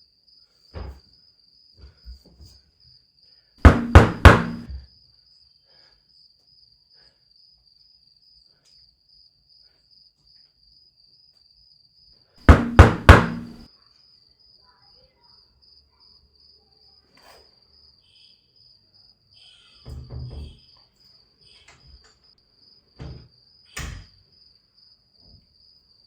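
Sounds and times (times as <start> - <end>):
crickets chirping: 2.8 - 26.0
knocking on a door: 3.6 - 4.8, 12.5 - 13.6.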